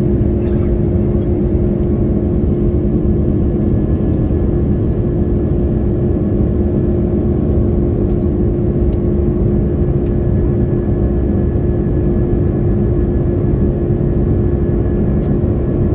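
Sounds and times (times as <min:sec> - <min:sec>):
airliner cabin engine rumble: 0:00.0 - 0:15.9.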